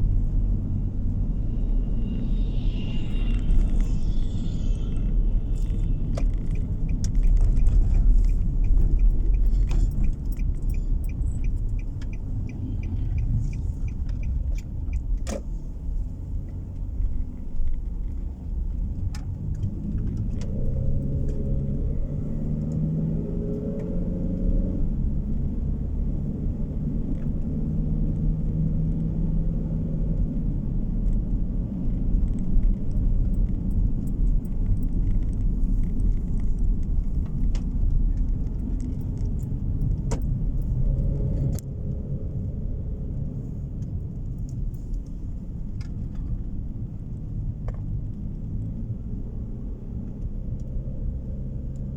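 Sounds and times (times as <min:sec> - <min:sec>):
tyre and road rumble: 0:00.0 - 0:29.4, 0:30.2 - 0:51.9
light evenly spaced ticks: 0:03.1 - 0:16.0.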